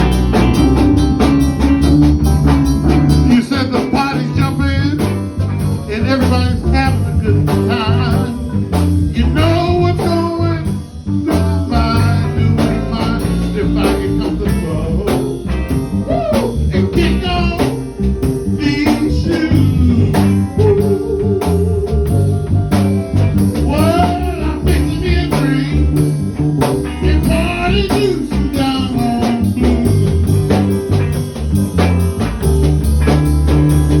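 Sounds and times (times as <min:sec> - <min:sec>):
blues band playing: 0:00.0 - 0:34.0
person singing with vibrato: 0:05.9 - 0:17.8, 0:18.5 - 0:22.6, 0:23.6 - 0:26.0, 0:27.0 - 0:30.4.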